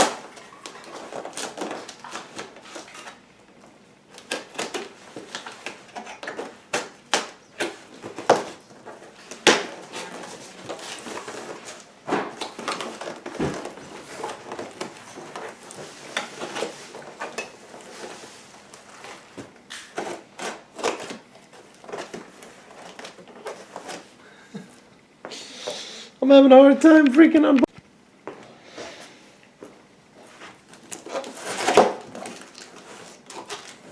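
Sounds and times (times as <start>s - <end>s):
packaging rustling: 0.0s - 3.2s, 4.1s - 24.2s, 30.2s - 33.9s.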